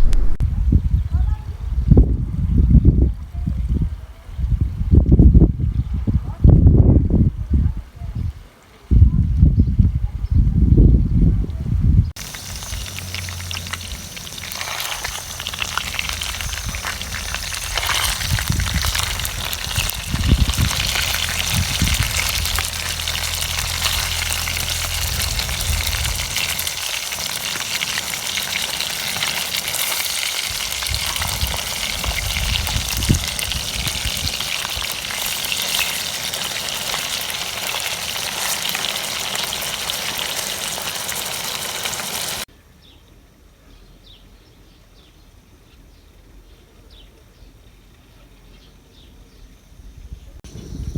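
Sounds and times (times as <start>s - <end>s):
low hum: 0.0s - 0.7s, 12.2s - 27.0s
meat sizzling in hot oil: 12.2s - 42.5s.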